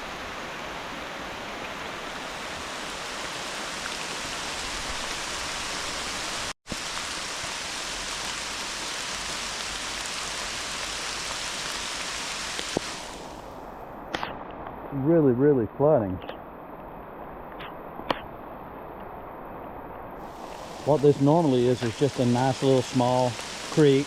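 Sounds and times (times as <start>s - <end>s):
hard rain falling: 0.0s - 13.3s, 20.2s - 24.0s
rushing creek: 0.0s - 24.0s.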